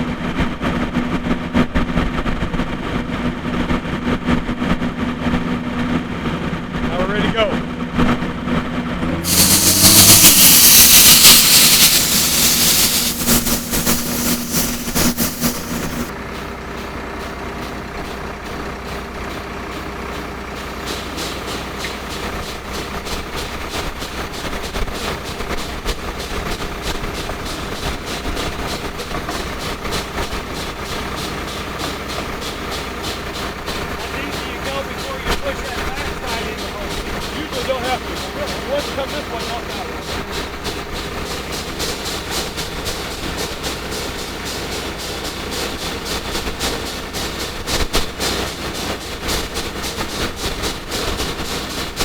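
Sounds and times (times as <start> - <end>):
drill rig engine running: 8.8 - 17.0, 27.0 - 52.0
loud hissing rush: 9.2 - 16.1, 34.0 - 40.1.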